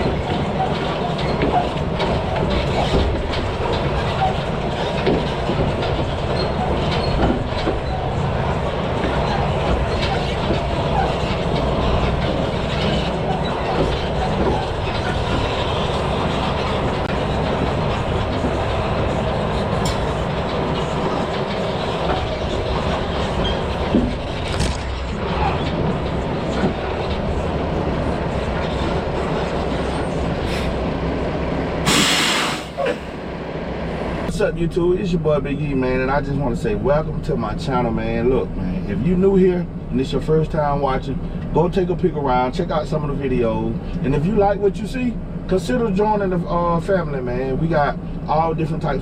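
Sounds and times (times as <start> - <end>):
trailer rattling and clanking: 0.0 - 49.0
truck engine rumble: 0.0 - 49.0
loud air hiss: 31.8 - 32.9.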